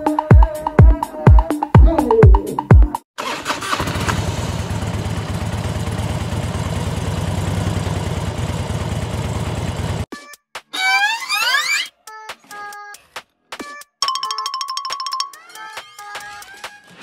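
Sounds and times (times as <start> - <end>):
small motorcycle engine idling: 3.2 - 10.1.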